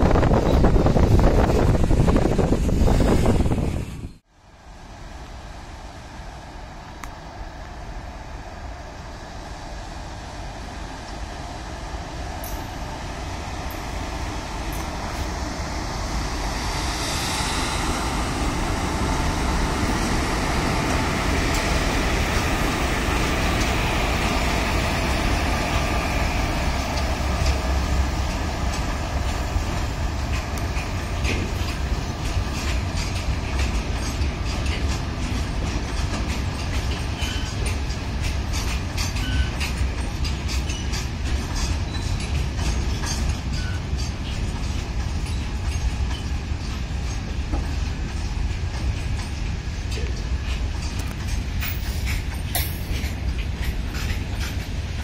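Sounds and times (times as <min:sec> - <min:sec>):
freight train rumbling past: 0:00.0 - 0:55.0
wheels clicking over rail joints: 0:20.6 - 0:55.0.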